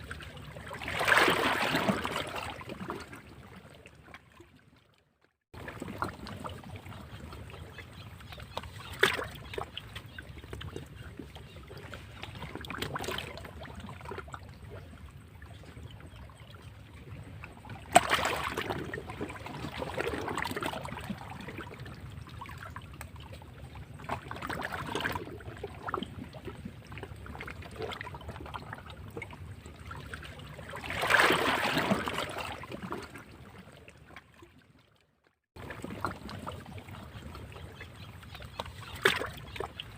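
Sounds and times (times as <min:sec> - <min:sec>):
sea waves breaking against rocks: 0:00.0 - 0:03.2, 0:17.9 - 0:21.7, 0:30.7 - 0:33.2.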